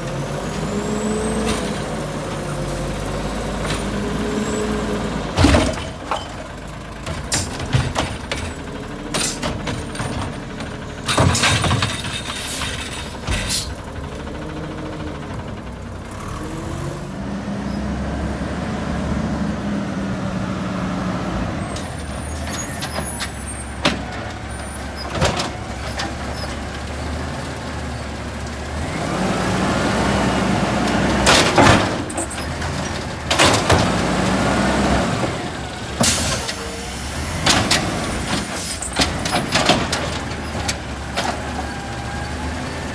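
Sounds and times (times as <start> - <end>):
garbage truck engine revving: 0.0 - 42.9
metal clanks and bangs: 1.4 - 14.2, 30.8 - 41.9.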